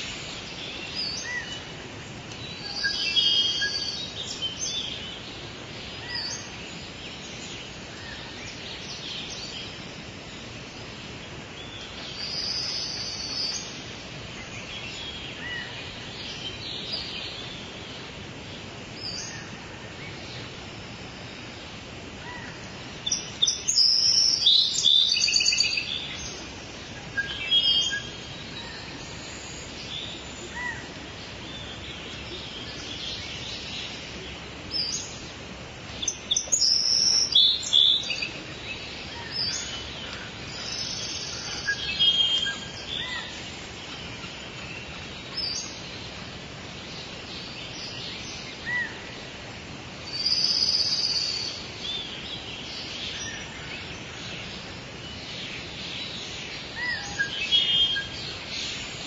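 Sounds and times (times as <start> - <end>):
birds chirping and calling: 0.0 - 9.9, 22.2 - 49.3, 50.1 - 59.0
forest ambience hiss: 0.0 - 59.0.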